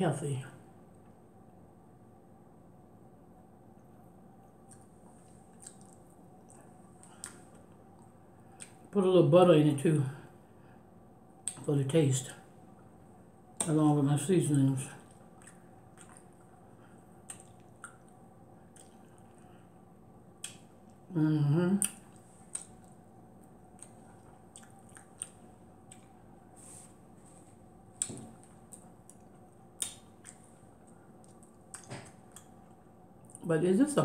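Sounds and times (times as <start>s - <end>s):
person chewing vegetables: 3.8s - 8.9s, 15.0s - 19.7s, 21.8s - 33.4s.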